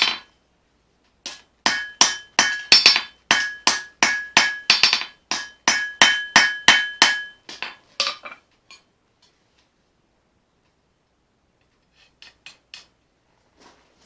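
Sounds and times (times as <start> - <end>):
hammer striking steel on anvil: 0.0 - 0.3, 1.2 - 8.3.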